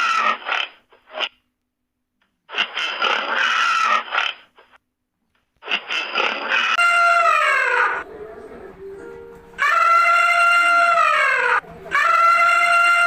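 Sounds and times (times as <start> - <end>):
animal rasping call: 2.6 - 4.4, 9.6 - 13.0.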